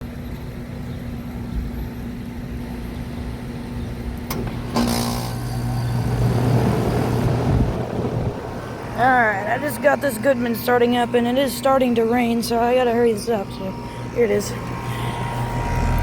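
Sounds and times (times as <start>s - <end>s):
air conditioner humming: 0.0s - 16.0s
air conditioner click: 4.1s - 6.5s.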